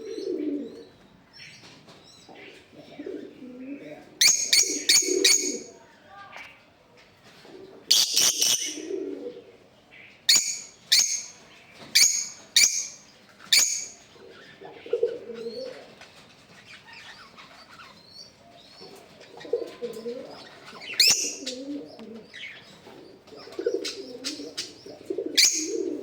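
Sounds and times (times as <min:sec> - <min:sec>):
lovebirds chattering: 0:00.0 - 0:26.0
lovebirds shrieking: 0:04.2 - 0:05.8, 0:07.9 - 0:09.1, 0:16.6 - 0:26.0.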